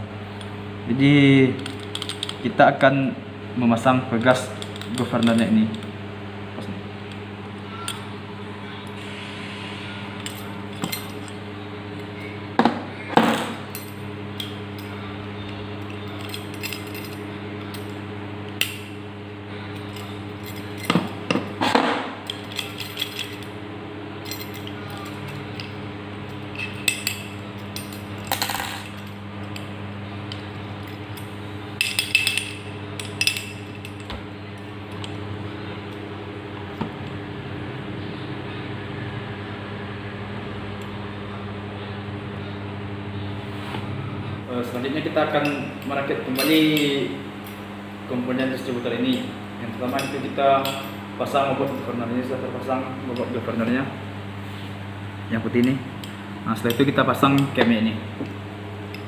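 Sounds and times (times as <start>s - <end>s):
steady low hum: 0.0s - 59.0s
small metal parts clinking: 1.6s - 2.4s, 15.8s - 17.9s, 22.3s - 23.5s, 26.5s - 29.6s, 30.8s - 34.1s.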